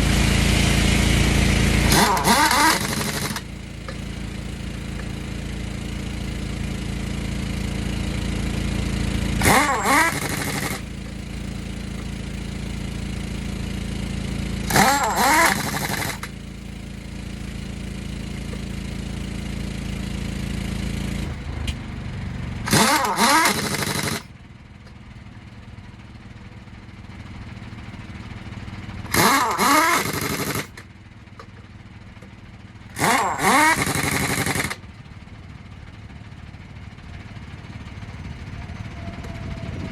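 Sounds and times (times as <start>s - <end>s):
impact wrench bursts: 0.0s - 19.6s, 22.6s - 24.4s, 29.1s - 31.5s, 32.9s - 34.9s
low engine drone: 0.0s - 39.9s.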